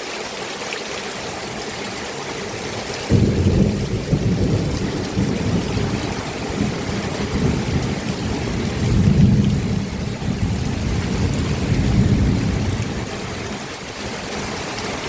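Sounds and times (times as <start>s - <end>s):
steady rain falling: 0.0s - 15.0s
low rolling thunder: 3.0s - 15.0s.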